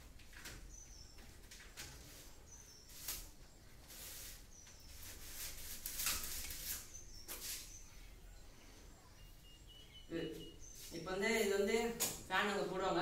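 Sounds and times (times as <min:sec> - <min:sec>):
electrical wire rustling: 0:00.0 - 0:07.9
small bird chirping: 0:00.3 - 0:11.9.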